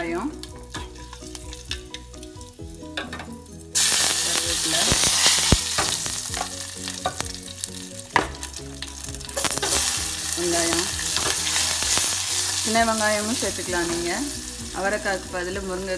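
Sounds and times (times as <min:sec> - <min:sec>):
seeds sizzling in hot oil: 0:00.0 - 0:15.9
loud hissing of leaves in oil: 0:03.8 - 0:15.9
oil pops and clicks: 0:04.8 - 0:07.4.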